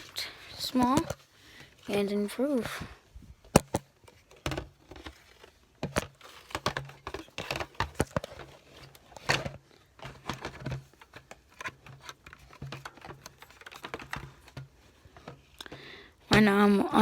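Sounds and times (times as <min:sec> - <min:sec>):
objects clicking and rustling: 0:00.0 - 0:02.0, 0:02.6 - 0:17.0.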